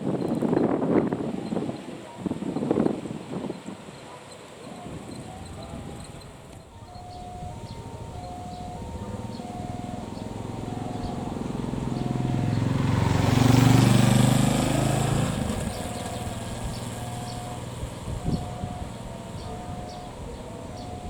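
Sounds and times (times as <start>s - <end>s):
vehicle engine passing: 4.9s - 21.0s.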